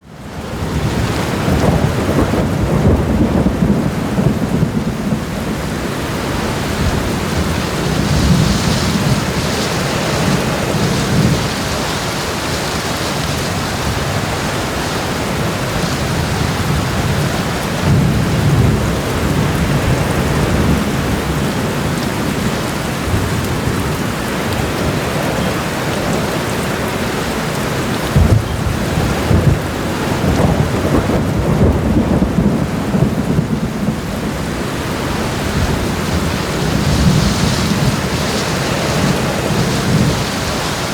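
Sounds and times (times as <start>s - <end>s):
steady rain: 0.0s - 40.9s
thunder rumbling: 0.2s - 40.9s.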